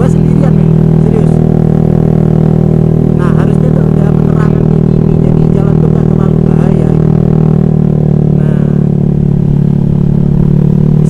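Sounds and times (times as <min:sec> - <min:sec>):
scooter engine droning: 0:00.0 - 0:11.0.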